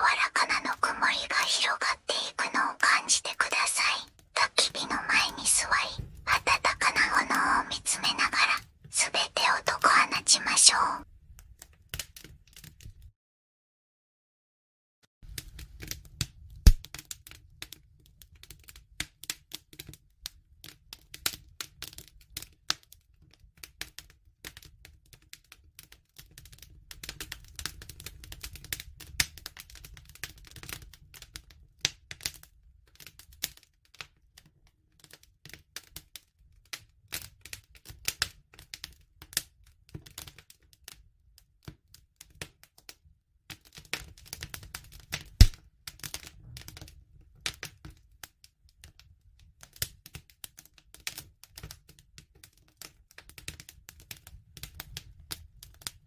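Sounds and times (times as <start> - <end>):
wood fire crackling: 15.3 - 42.9, 43.5 - 56.0.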